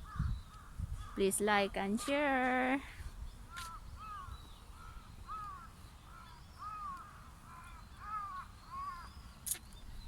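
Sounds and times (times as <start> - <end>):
crow cawing: 3.5 - 9.1.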